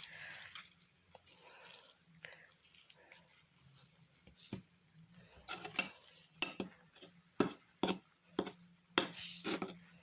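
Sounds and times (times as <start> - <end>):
foaming mixture fizzing: 0.0 - 5.1.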